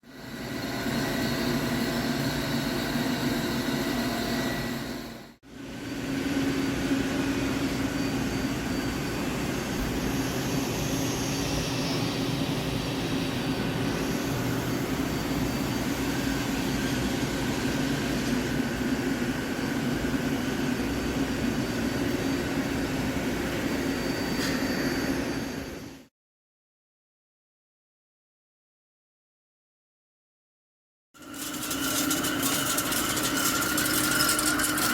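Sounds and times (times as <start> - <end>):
lathe humming with hiss: 31.2 - 34.9.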